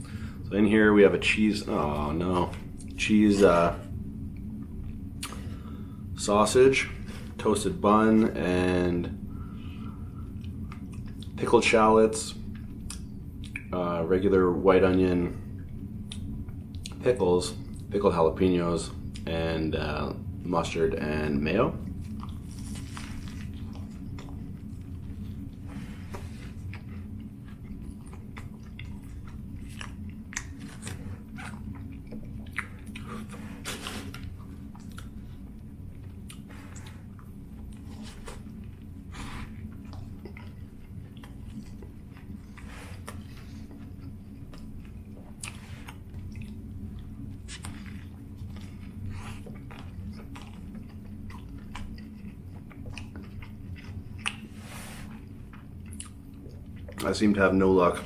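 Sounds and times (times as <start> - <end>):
steady low hum: 0.0 - 58.0
chewing a sandwich: 9.3 - 11.4, 21.8 - 58.0.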